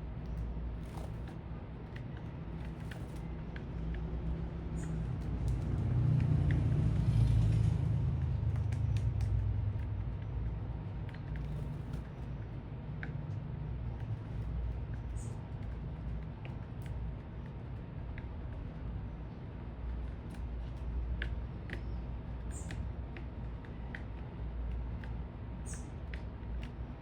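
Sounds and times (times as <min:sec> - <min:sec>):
road traffic rumble: 0:00.0 - 0:27.0
vehicle passing: 0:05.5 - 0:08.9.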